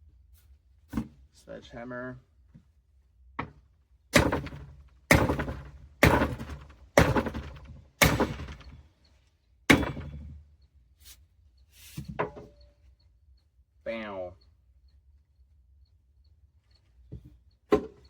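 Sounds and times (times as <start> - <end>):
sledgehammer striking metal: 4.2 - 8.7, 9.7 - 10.4.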